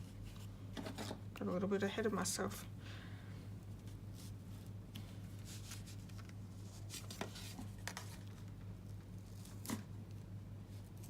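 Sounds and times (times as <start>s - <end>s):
steady low hum: 0.0s - 11.0s
paper rustling and scraping: 5.4s - 8.6s.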